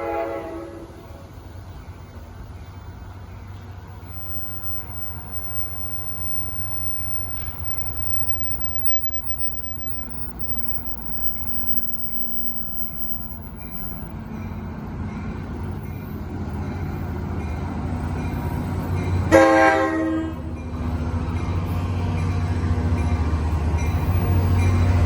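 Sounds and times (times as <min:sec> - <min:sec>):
train horn blast: 0:00.0 - 0:01.0, 0:19.3 - 0:20.5
train rumbling: 0:00.0 - 0:25.0.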